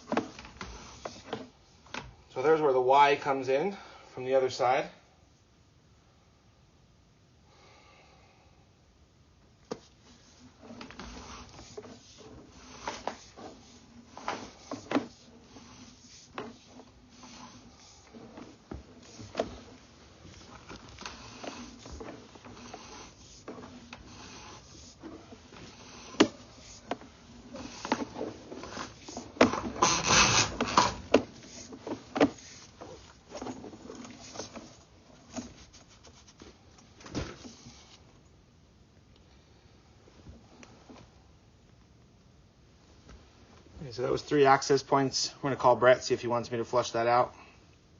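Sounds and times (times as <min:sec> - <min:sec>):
cable scraping in drain pipe: 0:00.0 - 0:02.0, 0:09.7 - 0:36.6.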